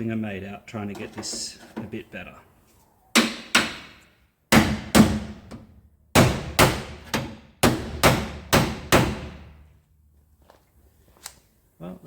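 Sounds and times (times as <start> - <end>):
hammer striking steel panel: 6.2 - 9.5.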